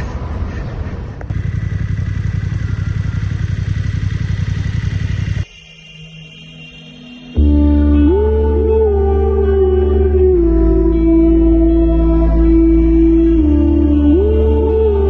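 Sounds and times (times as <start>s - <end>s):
motorcycle engine running: 1.2s - 5.5s.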